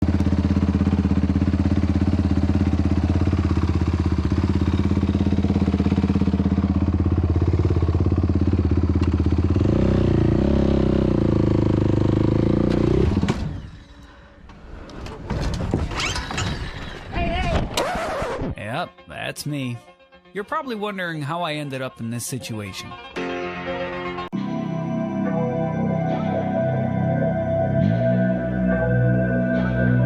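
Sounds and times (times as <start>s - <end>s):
quad engine running: 0.0s - 13.5s.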